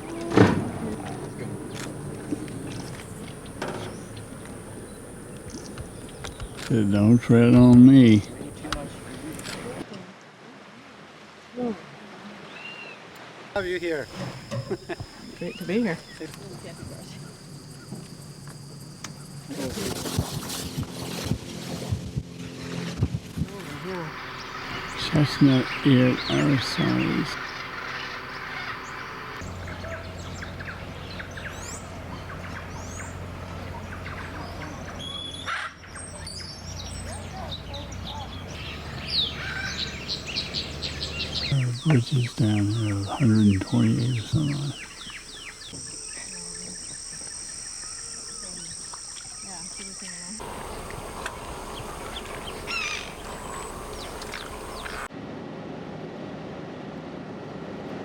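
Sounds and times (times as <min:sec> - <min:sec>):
steady low hum: 0:00.0 - 0:09.8, 0:20.4 - 0:35.0, 0:36.7 - 0:49.2, 0:49.9 - 0:55.1
wild birds chirping: 0:00.0 - 0:09.9, 0:13.6 - 0:19.5, 0:23.6 - 0:55.1
outdoor background noise: 0:00.0 - 0:58.0
short downward bird calls: 0:50.6 - 0:55.1.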